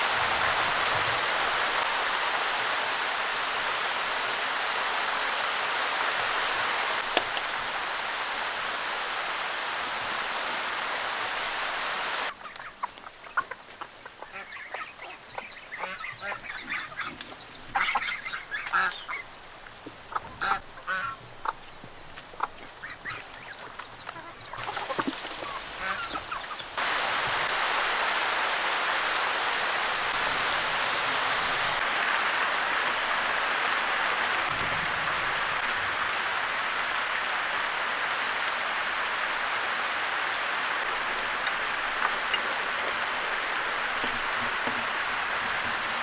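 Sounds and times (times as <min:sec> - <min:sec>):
steady hissing rush: 0:00.0 - 0:12.5, 0:25.4 - 0:46.0
waterfowl calling: 0:11.6 - 0:27.9.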